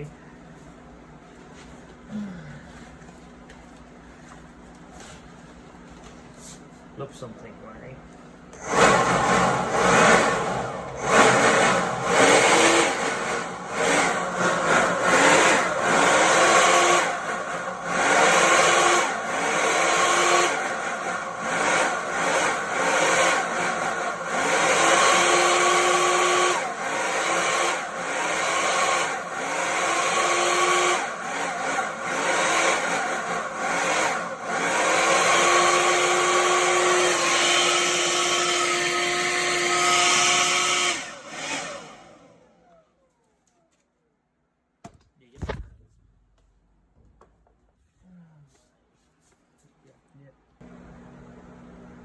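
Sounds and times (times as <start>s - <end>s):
loud rushing noise: 8.6s - 16.0s
power tool motor whine: 8.6s - 42.8s.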